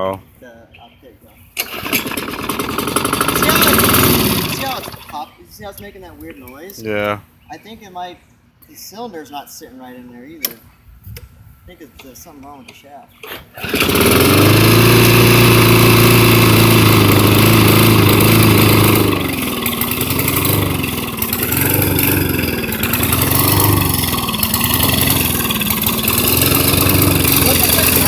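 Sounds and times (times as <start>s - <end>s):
lawn mower engine surging: 1.6s - 5.3s, 13.2s - 28.0s.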